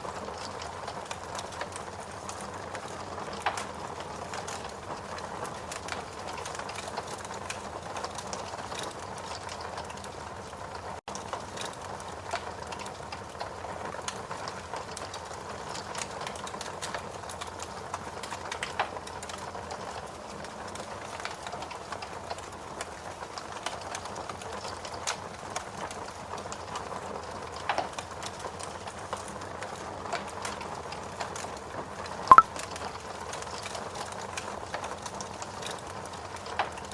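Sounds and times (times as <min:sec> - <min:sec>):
steady rain: 0:00.0 - 0:32.1, 0:32.9 - 0:36.9
wood fire crackling and popping: 0:00.2 - 0:19.4.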